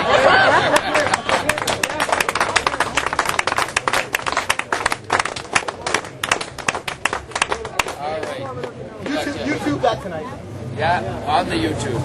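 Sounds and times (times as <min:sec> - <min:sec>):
crowd clapping: 0:00.2 - 0:08.8.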